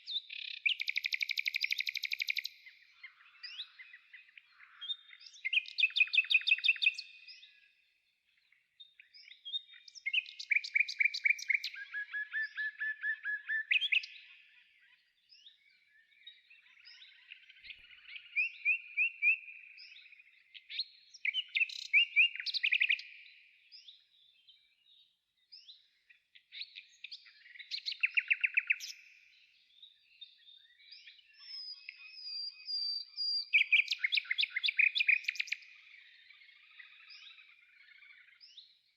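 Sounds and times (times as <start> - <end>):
songbird trilling: 0.0 - 7.5, 9.2 - 14.3, 31.2 - 38.7.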